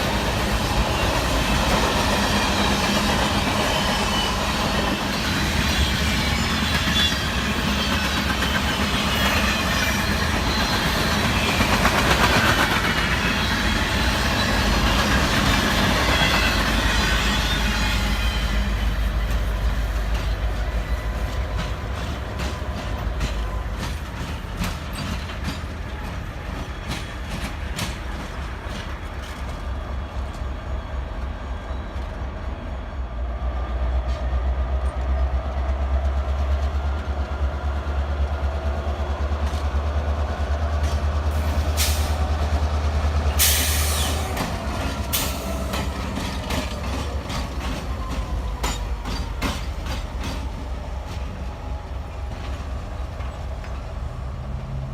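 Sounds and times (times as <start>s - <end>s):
freight train rumbling: 0.0s - 54.9s
wheels clicking over rail joints: 21.2s - 30.4s.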